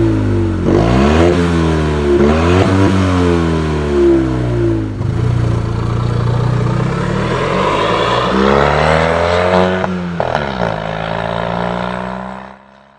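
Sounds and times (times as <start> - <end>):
car engine revving: 0.2 - 12.6
exhaust cracks: 4.7 - 11.2.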